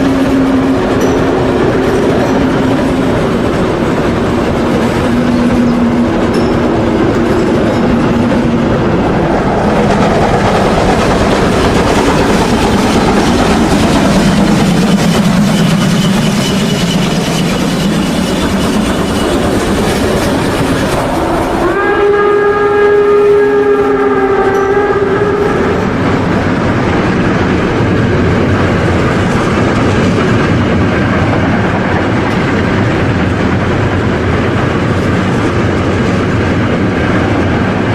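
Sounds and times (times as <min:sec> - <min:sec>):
steam whistle: 0:00.0 - 0:09.8, 0:14.1 - 0:26.4.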